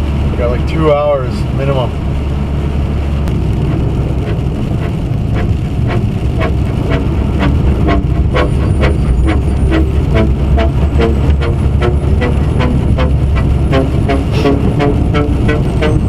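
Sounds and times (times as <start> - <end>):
vehicle engine and road rumble: 0.0 - 16.0
regular tapping: 3.2 - 16.0.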